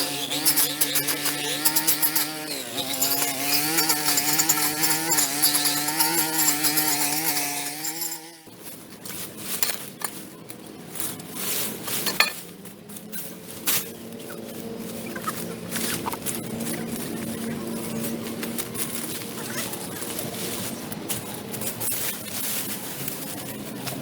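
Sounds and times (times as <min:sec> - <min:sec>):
small power tool engine running: 0:00.0 - 0:08.5.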